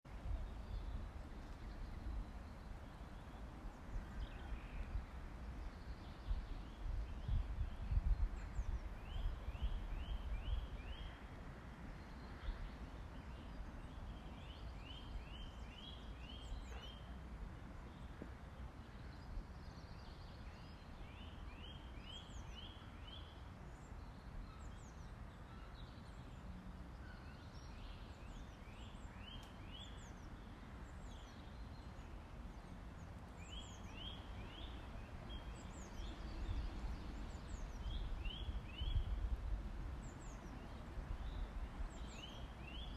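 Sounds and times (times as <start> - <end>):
bird song phrase: 0.1 - 11.2, 12.0 - 17.2, 17.8 - 39.2, 40.1 - 42.9.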